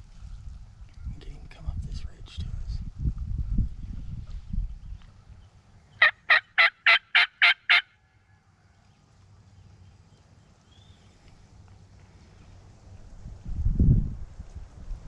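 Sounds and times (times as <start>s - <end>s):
turkey yelps: 6.0s - 8.0s.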